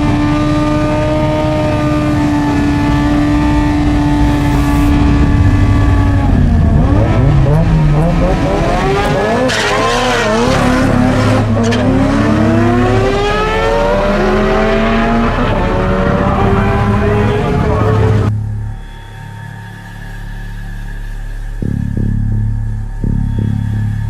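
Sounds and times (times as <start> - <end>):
car engines accelerating: 0.0 - 19.7.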